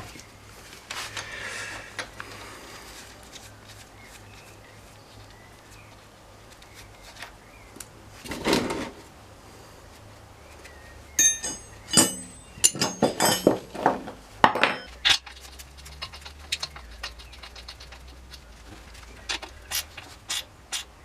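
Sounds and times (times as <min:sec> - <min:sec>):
metal tools clinking: 0:11.2 - 0:18.4.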